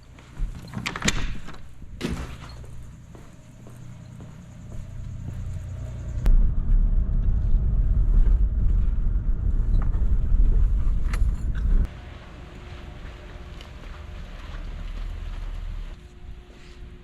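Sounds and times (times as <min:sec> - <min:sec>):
loud ragged low rumble: 0:05.1 - 0:12.2.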